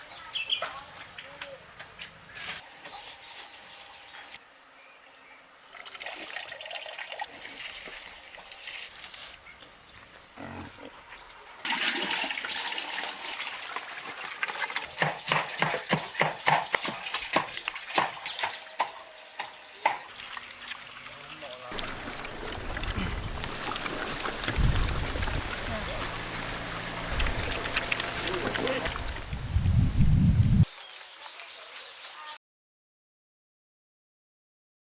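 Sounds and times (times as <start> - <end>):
pigs eating noisily: 9.8 - 29.2.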